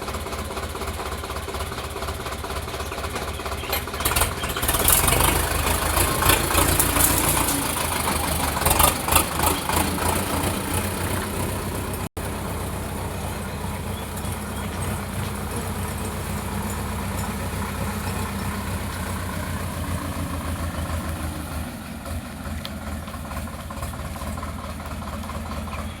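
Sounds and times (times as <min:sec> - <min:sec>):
tractor diesel engine running: 0:00.0 - 0:26.0
rattling clatter: 0:02.5 - 0:21.1.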